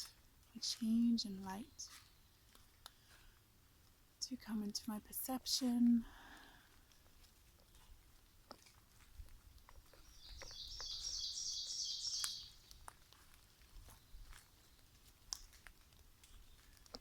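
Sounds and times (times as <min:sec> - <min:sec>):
footsteps on forest floor: 0:00.0 - 0:04.1, 0:05.6 - 0:17.0
songbird fast trill: 0:10.0 - 0:12.7.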